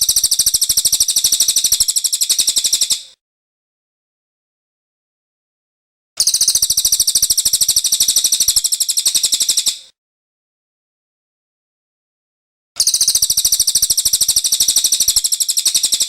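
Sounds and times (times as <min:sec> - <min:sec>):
songbird high repeated chirps: 0:00.0 - 0:03.1, 0:06.2 - 0:09.9, 0:12.8 - 0:16.0.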